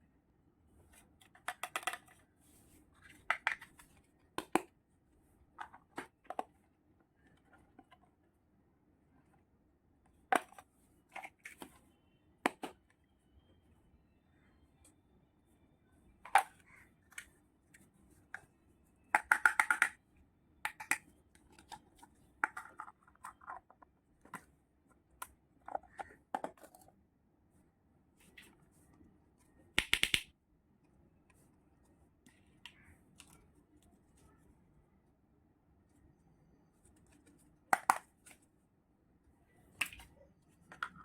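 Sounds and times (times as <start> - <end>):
toy kitchen pieces clicking: 1.3 - 2.2, 19.1 - 20.0, 20.7 - 21.8, 22.4 - 23.8, 29.8 - 30.3, 37.7 - 38.0.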